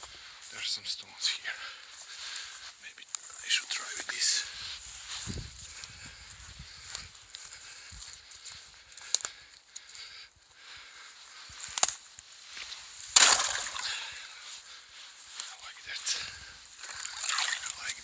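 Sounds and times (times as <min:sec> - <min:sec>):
stone crunching through ice splash: 0:13.0 - 0:14.1.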